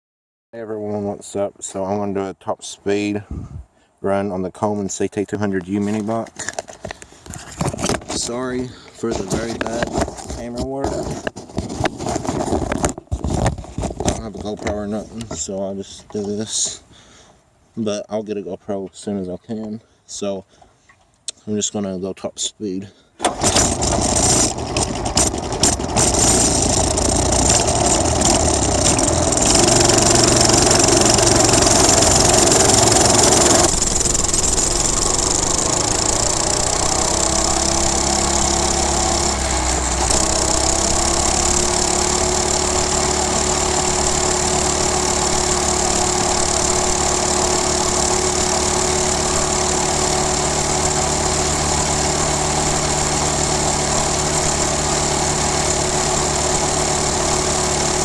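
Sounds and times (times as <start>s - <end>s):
minibike engine running: 23.3s - 58.0s.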